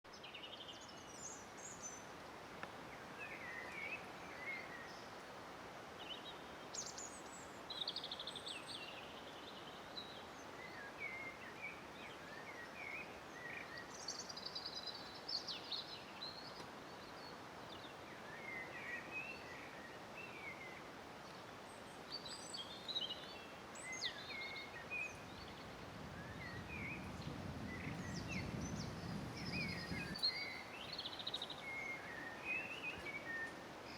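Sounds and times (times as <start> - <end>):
birds chirping and trilling: 6.0 - 33.9
steady rushing noise: 25.2 - 30.2.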